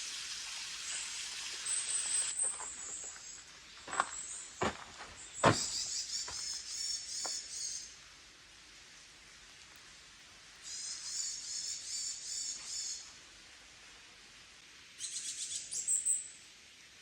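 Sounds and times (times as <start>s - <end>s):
high chirping birdsong: 0.8s - 7.9s, 10.6s - 13.0s, 15.0s - 16.4s
sharp thuds: 5.4s - 5.7s.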